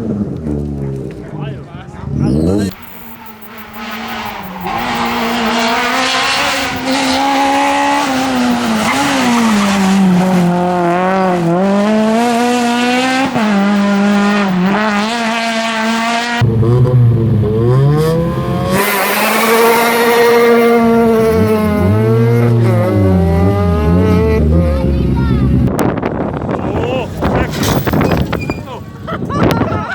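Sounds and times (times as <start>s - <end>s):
rally car engine revving: 0.0s - 29.6s.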